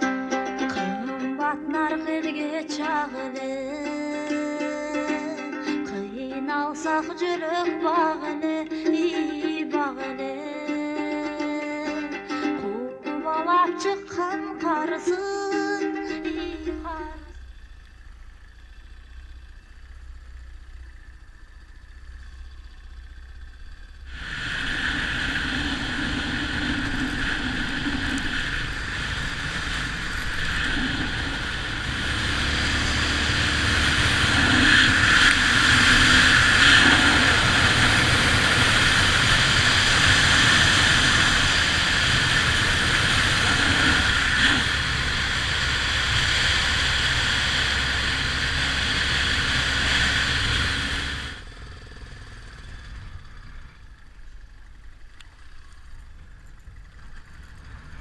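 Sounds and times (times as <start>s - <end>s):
faint low rumble: 16.2s - 58.0s
motorcycle engine running: 16.2s - 58.0s.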